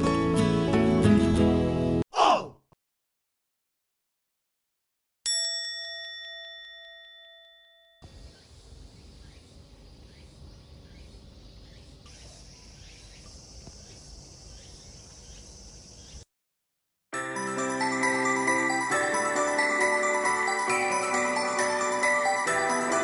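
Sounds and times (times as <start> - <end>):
bell-like ding: 5.3 - 8.0.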